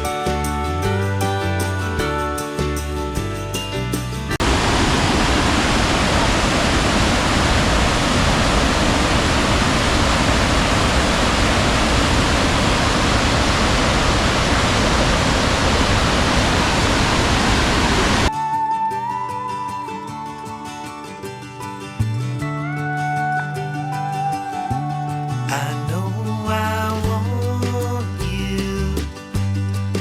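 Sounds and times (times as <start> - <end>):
music: 0.0 - 4.4, 18.3 - 30.0
waterfall rushing: 4.4 - 18.3.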